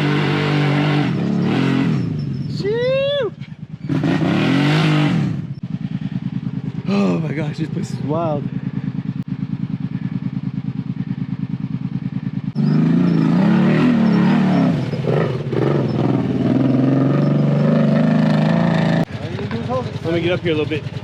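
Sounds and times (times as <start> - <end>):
atv engine revving: 0.0 - 21.0.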